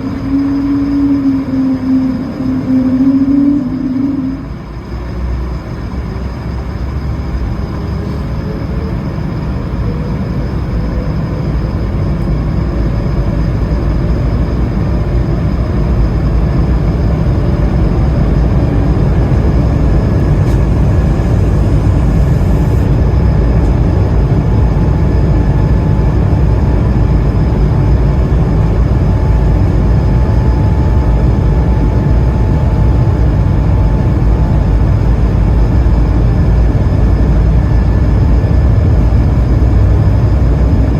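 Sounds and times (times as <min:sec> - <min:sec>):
faint rising whine: 0:00.0 - 0:40.9
jet engines spooling up: 0:00.0 - 0:40.9.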